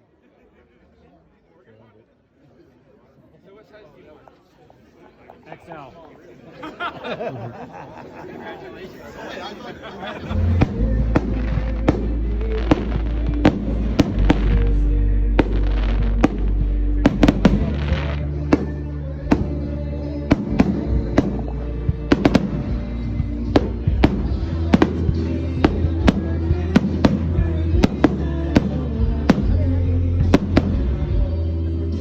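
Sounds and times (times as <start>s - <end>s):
music with steady bass: 10.2s - 32.0s
fireworks popping and banging: 10.3s - 14.8s, 15.4s - 19.7s, 20.3s - 29.6s.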